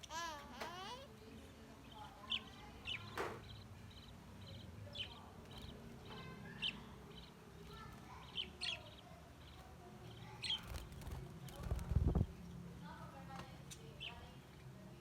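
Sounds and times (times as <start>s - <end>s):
budgerigar chicks chirping: 1.2s - 12.6s.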